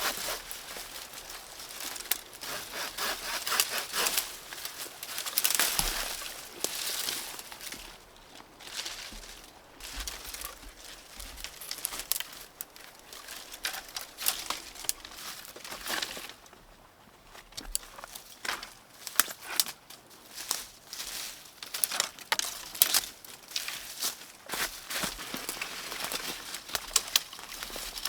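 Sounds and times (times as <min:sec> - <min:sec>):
leaves and twigs crackling: 0:00.0 - 0:16.6, 0:17.3 - 0:28.0.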